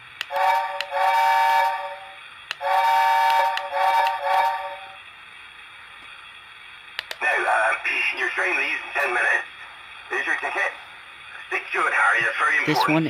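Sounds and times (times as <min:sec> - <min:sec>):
electronic steam whistle blasts: 0:00.2 - 0:05.0.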